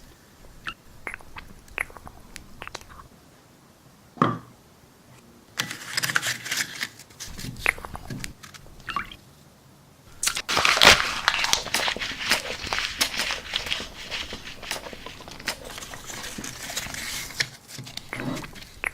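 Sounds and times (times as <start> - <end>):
chips crunching while chewed: 10.1 - 18.9.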